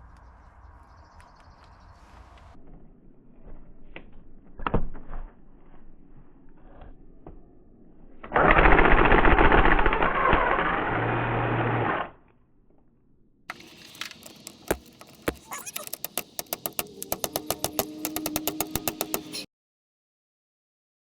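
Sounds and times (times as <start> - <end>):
power tool rattling: 8.3 - 11.9
sharp metallic clicks: 13.5 - 19.5.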